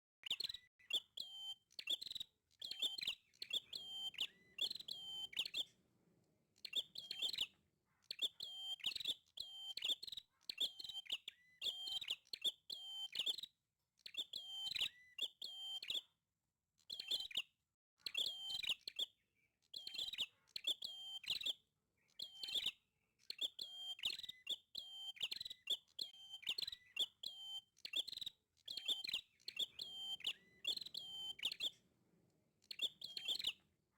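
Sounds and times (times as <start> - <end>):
bird singing rapid high chirps: 0.2 - 5.7, 23.3 - 31.8, 32.6 - 33.6.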